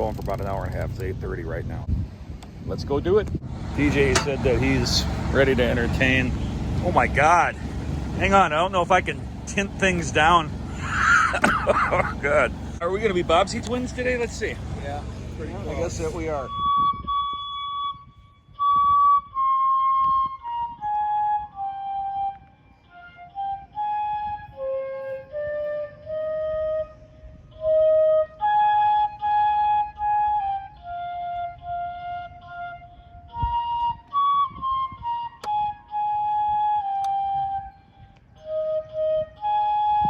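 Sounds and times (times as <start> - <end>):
flute-like slow melody: 15.6 - 40.0.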